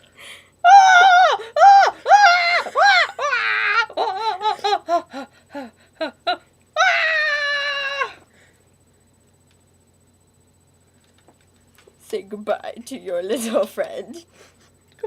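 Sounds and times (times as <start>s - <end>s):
falsetto vocal cries and yelps: 0.7s - 8.2s.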